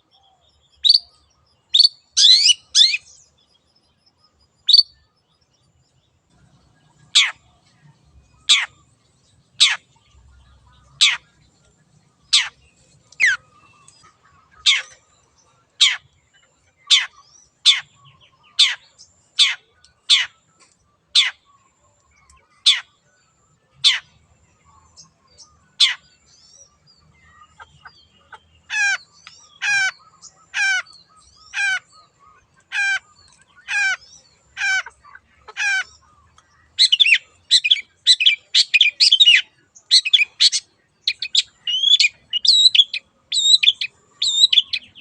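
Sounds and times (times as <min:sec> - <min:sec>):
bird sharp downward calls: 0:00.7 - 0:03.2, 0:06.3 - 0:07.6, 0:08.3 - 0:15.1, 0:16.8 - 0:20.4, 0:27.3 - 0:36.1, 0:36.7 - 0:45.0.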